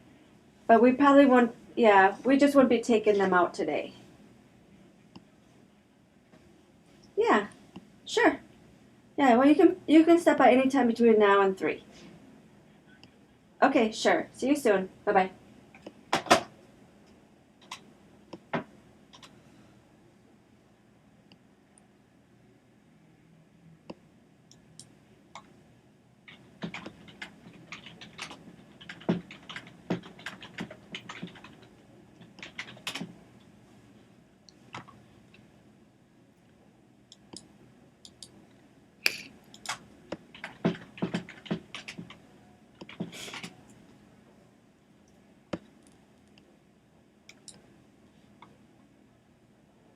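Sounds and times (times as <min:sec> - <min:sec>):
typing on computer keyboard: 0:17.6 - 0:17.8, 0:19.1 - 0:19.4, 0:26.3 - 0:33.1, 0:39.5 - 0:42.2, 0:42.8 - 0:43.5.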